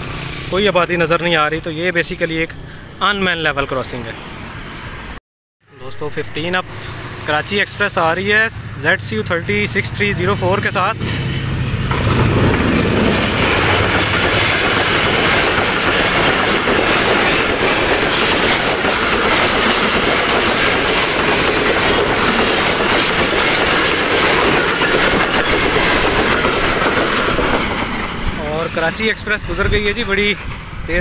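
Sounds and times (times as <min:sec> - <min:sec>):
locomotive engine: 0:05.8 - 0:31.0
wheels clattering over rail joints: 0:07.8 - 0:31.0.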